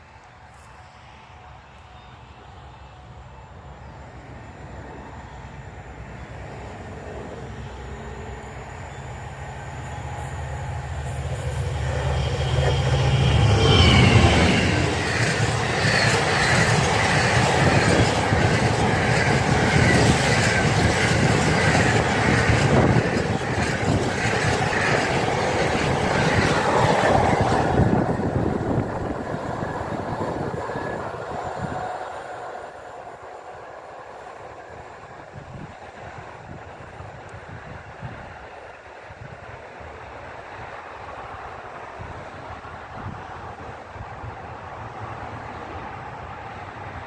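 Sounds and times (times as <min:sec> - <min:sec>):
faint wind: 0:00.0 - 0:47.0
freight train rolling past: 0:00.0 - 0:47.0
train wheel squeal: 0:07.5 - 0:44.2.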